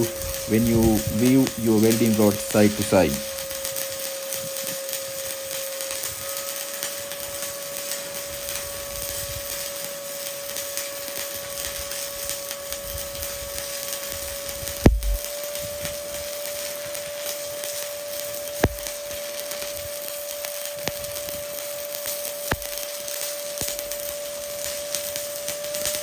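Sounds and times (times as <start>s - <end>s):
steady whine: 0.0s - 6.2s, 11.4s - 25.5s
welding arc crackling: 0.0s - 26.0s
sharp knock: 14.9s - 15.2s.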